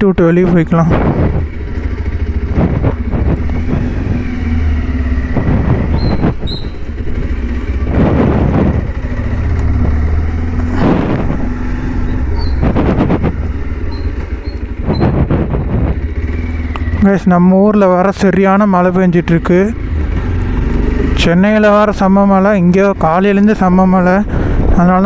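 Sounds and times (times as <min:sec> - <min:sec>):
motorcycle engine rumbling: 0:00.0 - 0:25.0
loud rushing swells: 0:01.0 - 0:16.4.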